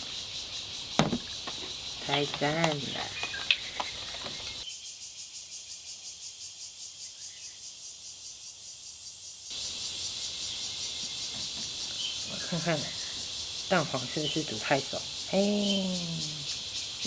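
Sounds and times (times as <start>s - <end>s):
insects chirping: 0.0s - 17.0s
sharp knock: 1.0s - 1.3s.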